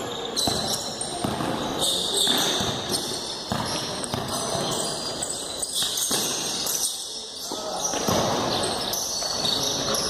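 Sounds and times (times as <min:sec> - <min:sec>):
gym background noise: 0:00.0 - 0:10.0
basketball bouncing on court: 0:00.3 - 0:05.2, 0:05.8 - 0:06.8, 0:07.9 - 0:09.5.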